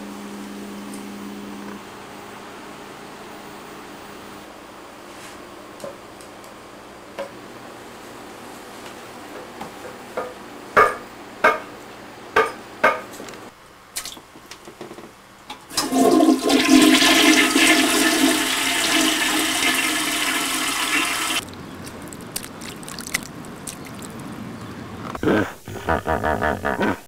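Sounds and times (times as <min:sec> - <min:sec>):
toilet flushing: 0:15.7 - 0:21.4.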